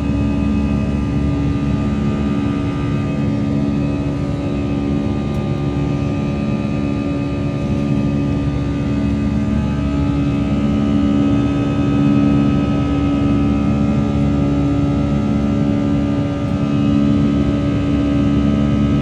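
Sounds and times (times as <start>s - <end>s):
jet engines roaring in cabin: 0.0s - 19.0s.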